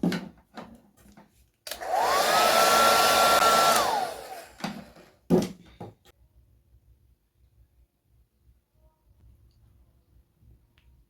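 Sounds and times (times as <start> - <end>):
hair dryer running: 1.7 - 5.1.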